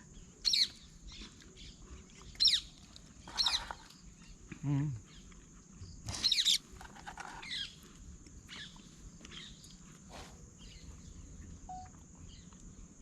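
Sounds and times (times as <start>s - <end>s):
insects droning: 0.0s - 13.0s
bird chirps: 0.2s - 4.4s, 10.6s - 12.5s.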